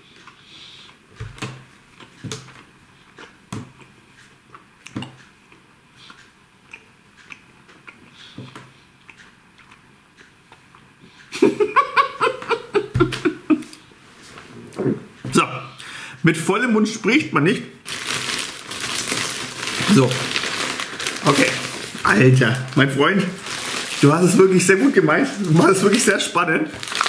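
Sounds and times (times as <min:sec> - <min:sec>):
man chewing with wet smacks: 0:00.0 - 0:11.3
man chuckling with mouth full: 0:11.3 - 0:13.8.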